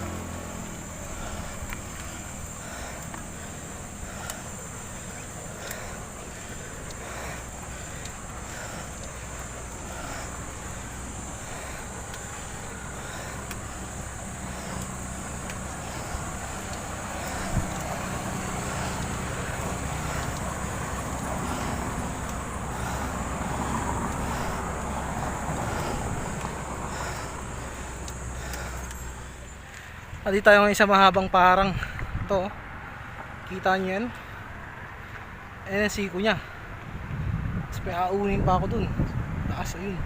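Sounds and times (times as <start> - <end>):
vehicle engine running: 0.0 - 30.4
road noise: 0.0 - 40.0.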